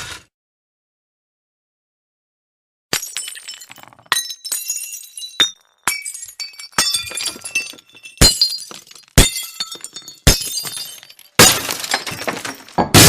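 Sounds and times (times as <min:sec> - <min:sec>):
glass smashing: 0:02.9 - 0:13.0.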